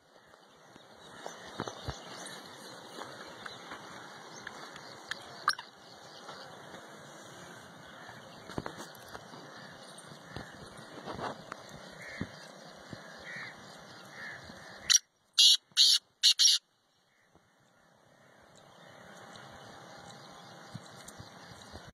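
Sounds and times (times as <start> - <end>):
bird calling loudly: 11.9 - 17.4.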